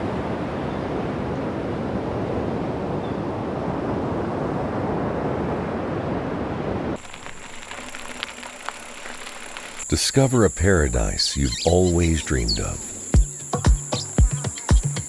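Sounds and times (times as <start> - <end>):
high insect trill: 7.0 - 15.0.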